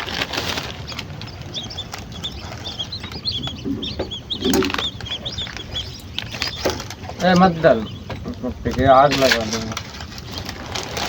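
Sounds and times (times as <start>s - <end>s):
small birds chirping: 0.0s - 10.5s.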